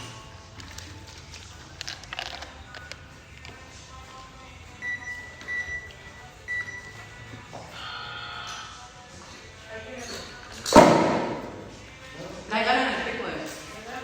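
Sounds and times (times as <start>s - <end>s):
faint background music: 0.0s - 14.0s
high electronic beep: 4.8s - 5.9s, 6.5s - 7.2s.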